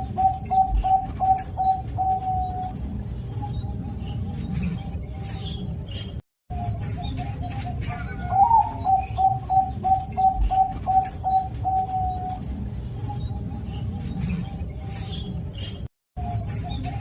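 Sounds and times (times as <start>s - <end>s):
dove cooing: 0.0s - 2.7s, 7.0s - 12.4s.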